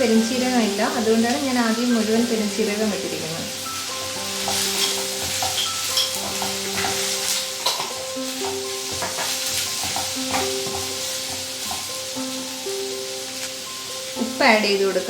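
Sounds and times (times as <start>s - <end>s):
onions sizzling in hot oil: 0.0s - 15.0s
utensil stirring and scraping: 3.5s - 12.1s
utensil knocking against pan: 3.9s - 12.1s.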